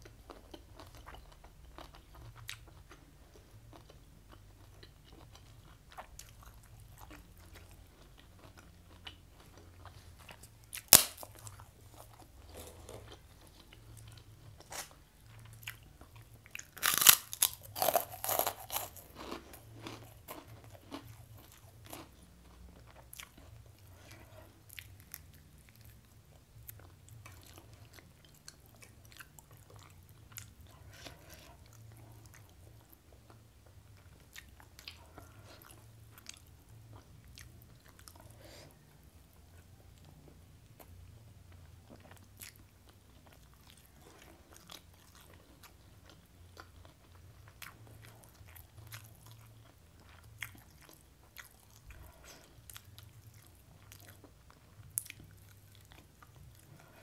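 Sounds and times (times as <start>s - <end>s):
chewing with small clicks: 0.0s - 10.5s, 38.9s - 57.0s
loud crunches of food: 16.6s - 21.1s.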